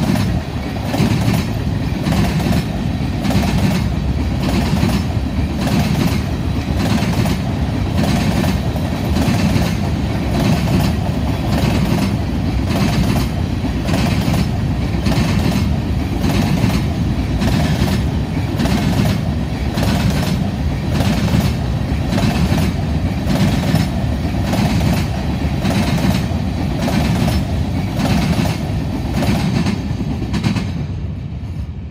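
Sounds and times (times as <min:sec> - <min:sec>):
freight train wheels clickety-clack: 0:00.0 - 0:31.9
low train rumble: 0:00.0 - 0:31.9.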